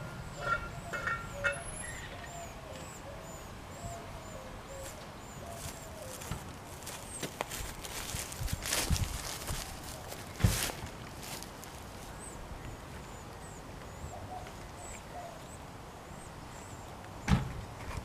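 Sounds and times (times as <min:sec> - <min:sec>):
bird singing repeated notes: 0:00.0 - 0:06.4
footsteps on grass: 0:04.8 - 0:12.2.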